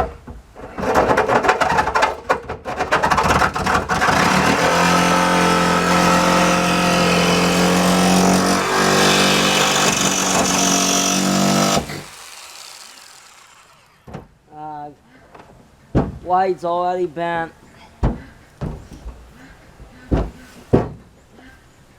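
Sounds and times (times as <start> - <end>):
jigsaw cutting sheet metal: 2.9 - 14.1.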